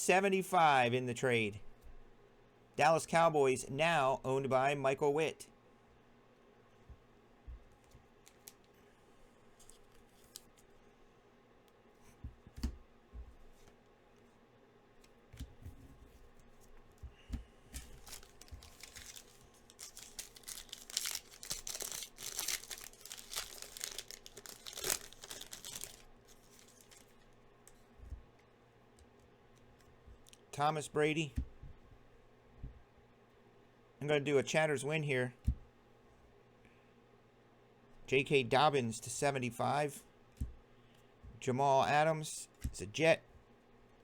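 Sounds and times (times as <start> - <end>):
foil wrapper tearing and crinkling: 17.8 - 27.2.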